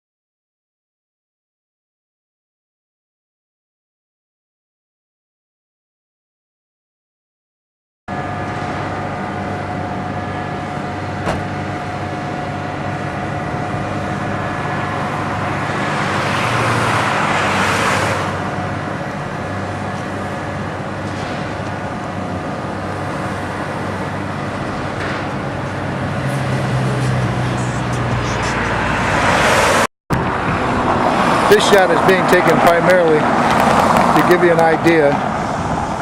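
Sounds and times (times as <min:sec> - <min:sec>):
steady engine hum: 0:08.1 - 0:36.0
street traffic: 0:08.1 - 0:36.0
vehicle passing: 0:11.8 - 0:36.0.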